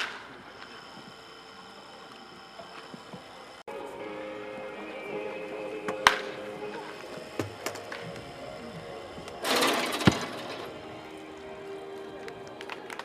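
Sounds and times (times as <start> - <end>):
baseball bat cracks: 0.0 - 0.3, 5.9 - 6.4
background music: 3.7 - 13.0.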